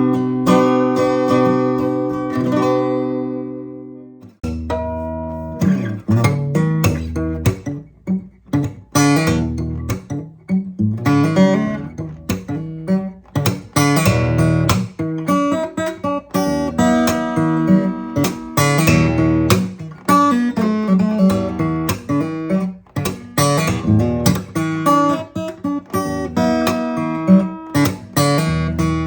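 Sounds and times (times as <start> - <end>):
acoustic guitar chords: 0.0 - 29.0.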